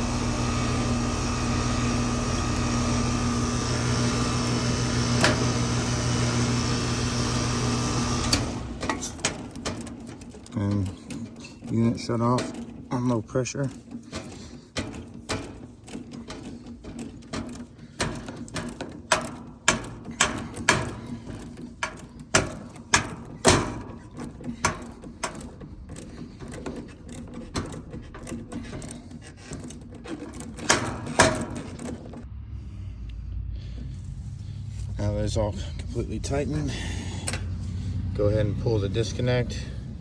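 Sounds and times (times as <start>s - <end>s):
wrench clicking and knocking on metal: 8.2s - 32.3s
low rumble: 32.3s - 40.0s.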